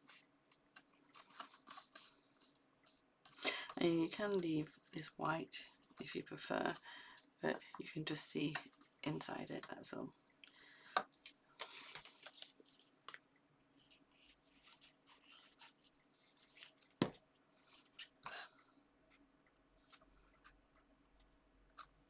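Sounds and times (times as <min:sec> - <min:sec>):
paper rustling: 0:00.8 - 0:02.5, 0:11.1 - 0:13.2.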